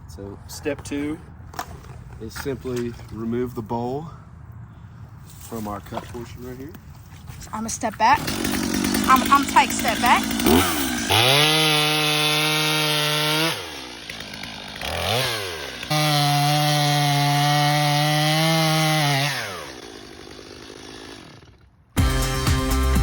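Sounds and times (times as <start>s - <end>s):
chainsaw cutting wood: 7.6s - 23.0s.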